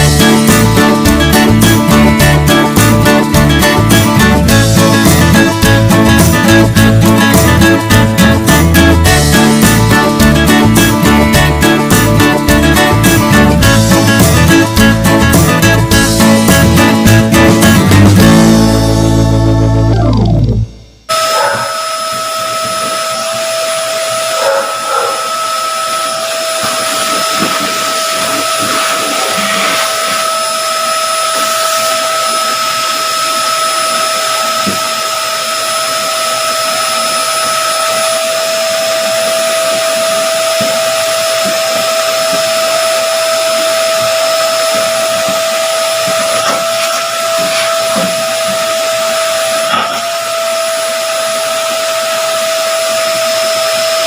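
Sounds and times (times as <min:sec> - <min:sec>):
small electric motor whining: 0:21.1 - 0:54.0.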